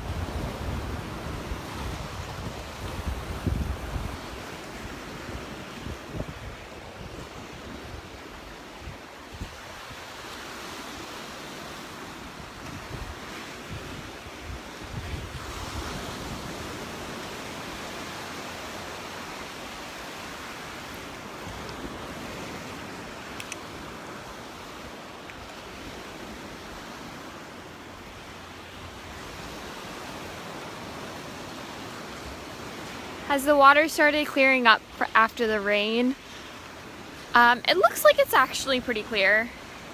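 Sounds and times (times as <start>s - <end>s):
wind buffeting microphone: 0.0s - 10.4s, 12.4s - 19.9s
surf breaking on beach: 0.0s - 39.9s.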